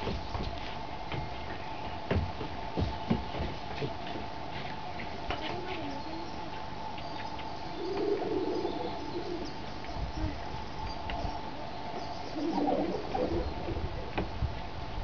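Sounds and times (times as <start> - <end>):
low wind rumble: 0.0 - 15.0
low-pitched bird calls: 5.8 - 14.4.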